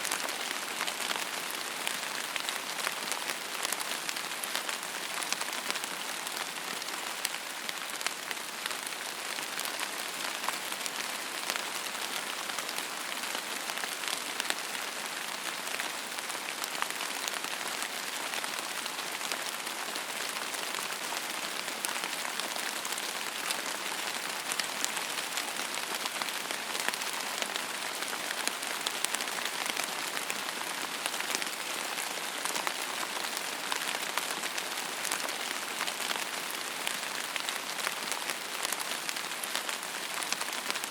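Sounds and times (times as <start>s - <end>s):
rain on a hard surface: 0.0s - 40.9s.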